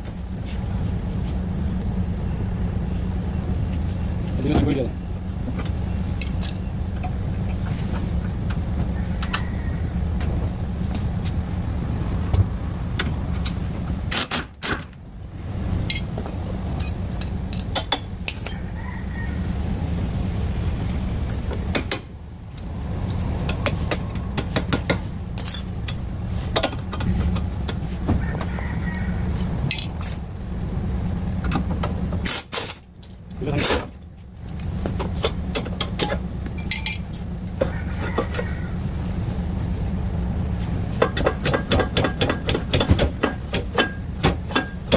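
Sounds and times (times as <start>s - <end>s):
steady low hum: 0.0s - 37.6s
metal tools clinking: 15.9s - 18.7s, 25.4s - 26.0s, 29.7s - 30.3s, 36.0s - 37.1s.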